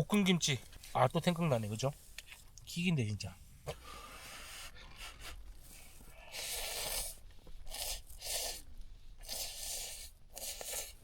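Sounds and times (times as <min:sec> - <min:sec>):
slurping noodles: 0:06.3 - 0:11.0.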